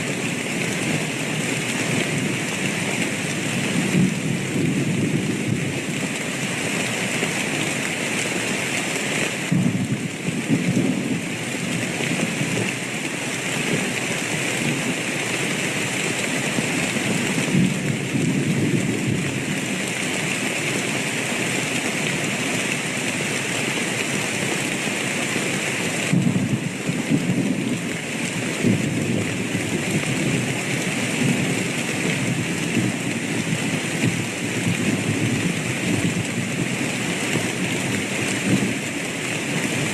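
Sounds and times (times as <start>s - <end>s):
heavy rain: 0.0s - 39.9s
thunder rumbling: 9.5s - 11.7s, 26.1s - 30.6s.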